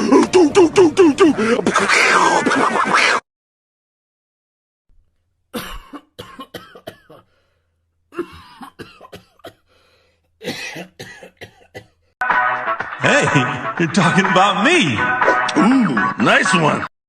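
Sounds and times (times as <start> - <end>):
person coughing: 5.6 - 7.3, 8.1 - 9.7, 10.4 - 12.0.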